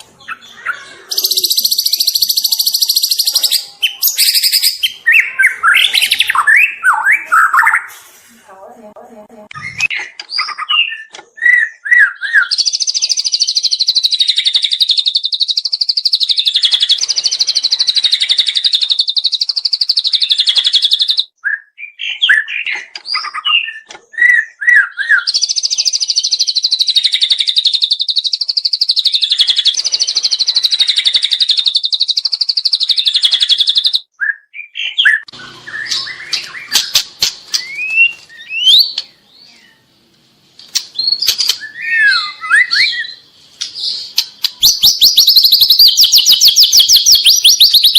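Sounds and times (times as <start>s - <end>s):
bird chirping notes: 0.0s - 8.0s, 9.4s - 47.9s
bird singing fast high trills: 0.2s - 7.9s, 23.1s - 39.8s, 41.0s - 47.9s
bird clicks: 40.6s - 41.7s.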